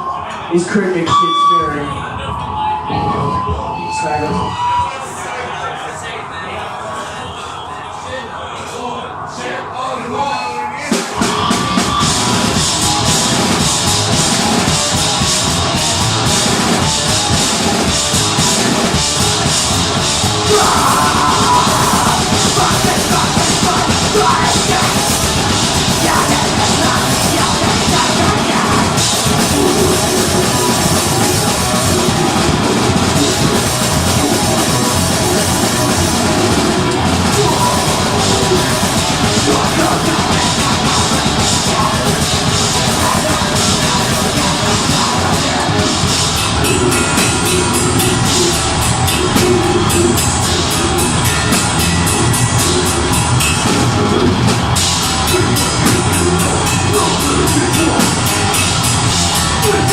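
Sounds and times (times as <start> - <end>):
distorted guitars: 0.0 - 59.9
drum kit: 10.9 - 59.9
bass guitar: 11.2 - 59.9
person yelling vocals: 20.4 - 30.6.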